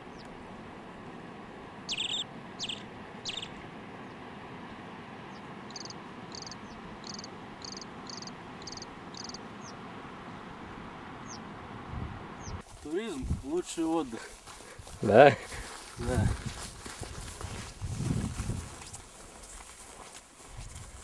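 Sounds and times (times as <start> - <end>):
steady background hiss: 0.0 - 16.0
bird chirping: 1.9 - 3.6, 5.3 - 9.8, 11.2 - 11.5, 12.4 - 12.6.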